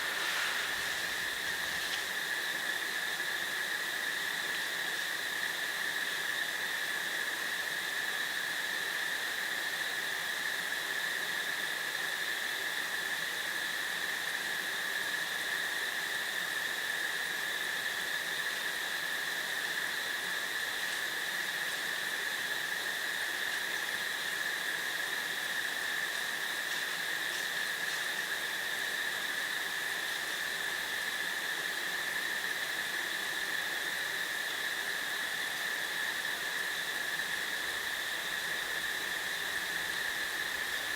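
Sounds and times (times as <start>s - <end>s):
crickets chirping: 0.0s - 7.8s, 18.0s - 40.9s.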